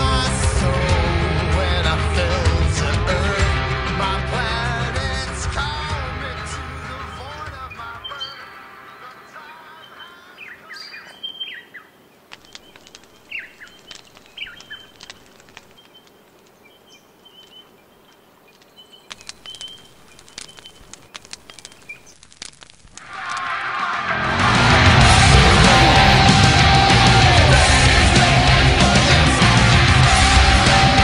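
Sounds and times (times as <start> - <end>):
short falling bird chirps: 7.0 - 8.5, 9.7 - 22.7.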